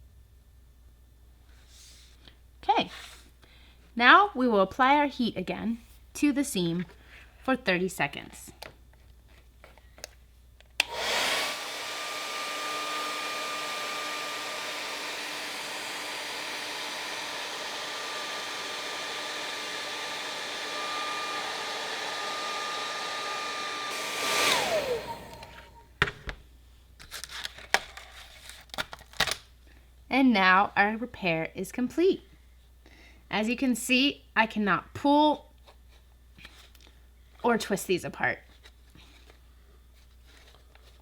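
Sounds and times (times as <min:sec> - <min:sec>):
hot-air blower whining: 0:10.8 - 0:25.9.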